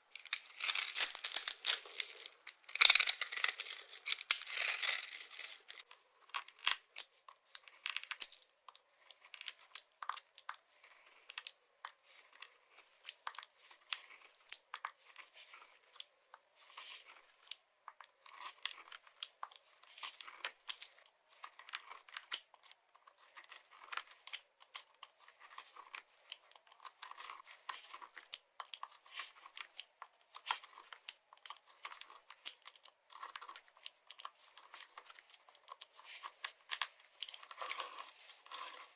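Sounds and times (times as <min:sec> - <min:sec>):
dry soap crunching: 0:00.0 - 0:05.8.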